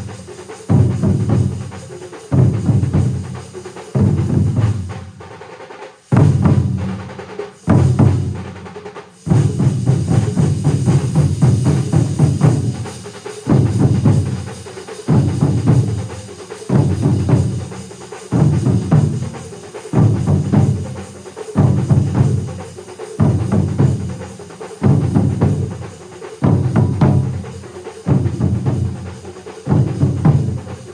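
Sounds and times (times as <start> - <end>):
heavy low drum beat: 0.0 - 5.3, 6.1 - 30.9
rapid rattle of drum sticks: 0.0 - 30.9.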